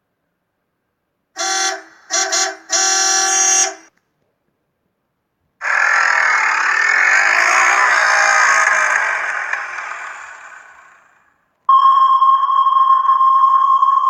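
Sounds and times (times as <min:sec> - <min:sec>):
car horn honking: 0:01.4 - 0:03.9
loud noisy vehicle: 0:01.4 - 0:03.9, 0:05.6 - 0:11.3.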